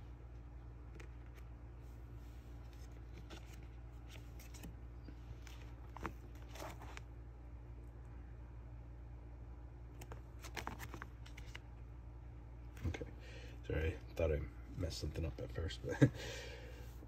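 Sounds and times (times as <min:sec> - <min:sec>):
cards rustling: 0:00.8 - 0:07.1, 0:09.9 - 0:11.8.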